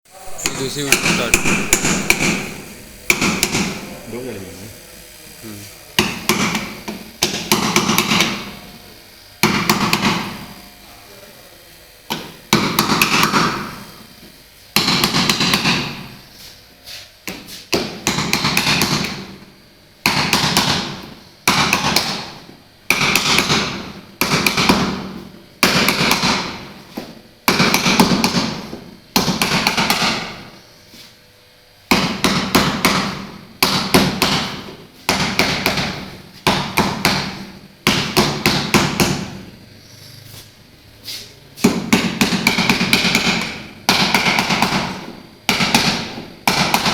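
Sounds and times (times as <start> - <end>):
hammer tapping: 0.4 - 3.9, 6.0 - 8.5, 9.4 - 10.4, 12.1 - 13.8, 14.8 - 16.1, 17.2 - 19.4, 20.0 - 30.5, 31.9 - 39.4, 41.6 - 46.9.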